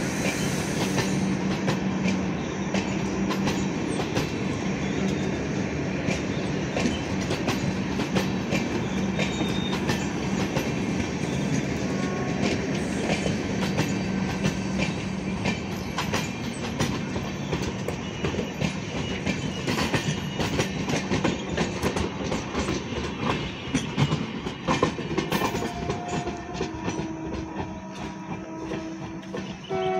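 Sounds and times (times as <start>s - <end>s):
train coaches rolling past: 0.0s - 29.9s
wheels clicking over rail joints: 6.0s - 29.9s.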